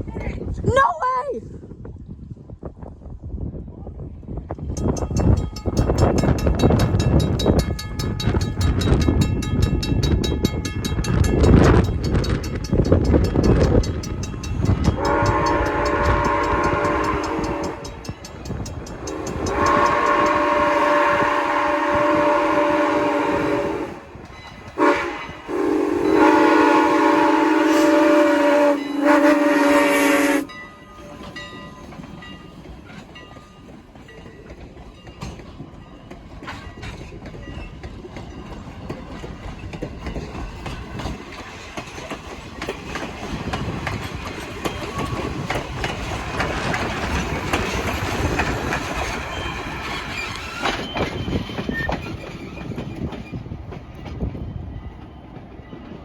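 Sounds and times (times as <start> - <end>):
train wheels clicking over rail joints: 4.5 - 29.3, 30.5 - 56.0
locomotive horn: 14.9 - 18.2, 19.0 - 30.6.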